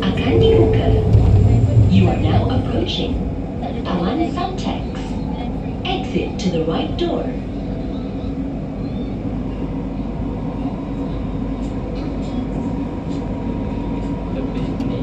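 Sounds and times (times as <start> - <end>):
train wheels rumbling: 0.0 - 7.6.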